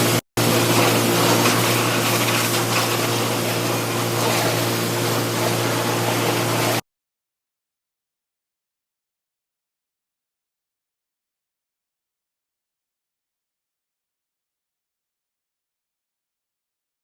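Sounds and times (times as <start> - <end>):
pressure washer spraying water: 0.0 - 6.8.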